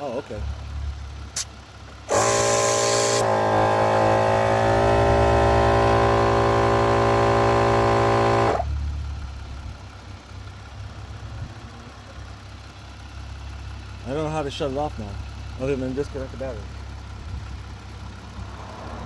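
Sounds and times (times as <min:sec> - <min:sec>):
air compressor running: 0:01.4 - 0:08.7.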